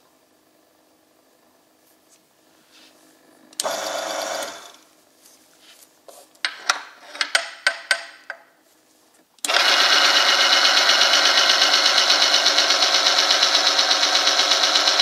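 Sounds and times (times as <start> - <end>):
electric motor whirring rattle: 3.6 - 4.8, 9.4 - 15.0.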